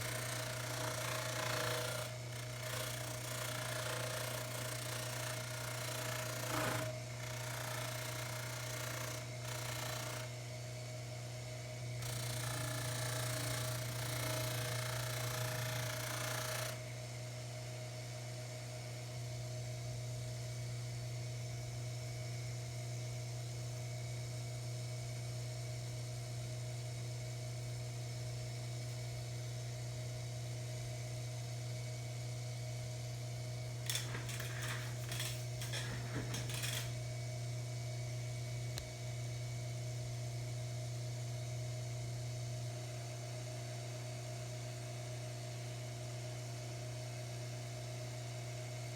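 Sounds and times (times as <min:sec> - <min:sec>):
clicks and knocks: 0:33.9 - 0:37.0
lathe buffer motor hum: 0:33.9 - 0:37.0.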